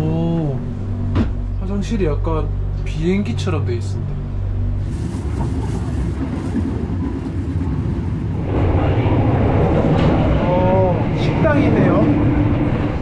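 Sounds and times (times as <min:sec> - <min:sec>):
train rumbling inside carriage: 0:04.4 - 0:13.0.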